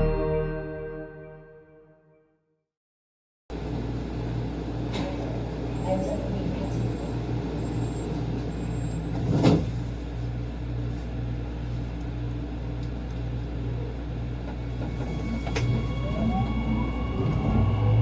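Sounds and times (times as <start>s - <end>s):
street traffic: 3.5s - 18.0s
large vehicle engine humming: 9.8s - 18.0s.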